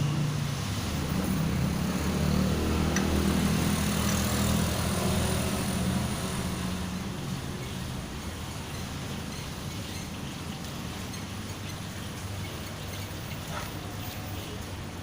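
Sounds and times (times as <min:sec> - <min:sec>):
vehicle engine passing by: 0:00.0 - 0:07.5.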